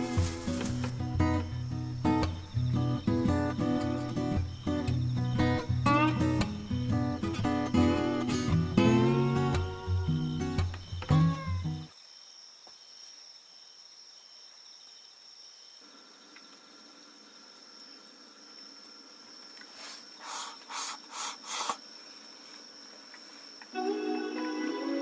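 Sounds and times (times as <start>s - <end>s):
short scraping rustles: 0.0s - 1.1s
insects chirring: 0.0s - 25.0s.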